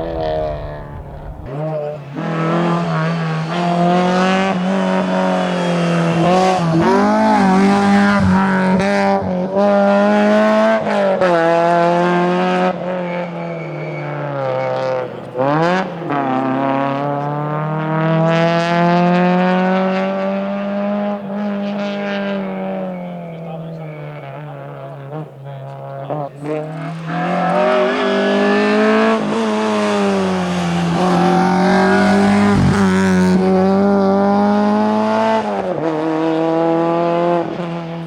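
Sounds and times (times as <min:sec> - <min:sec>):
rally car engine revving: 0:00.0 - 0:38.0.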